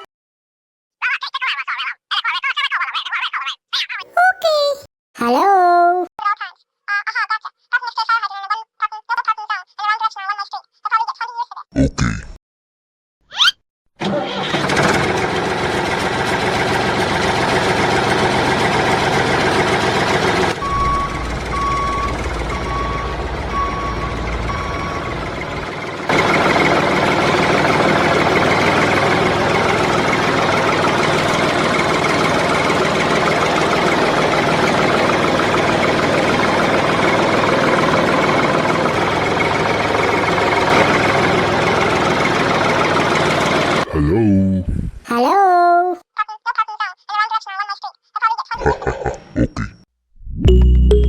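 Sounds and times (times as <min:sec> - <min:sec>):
tractor engine running: 0:14.0 - 0:43.9.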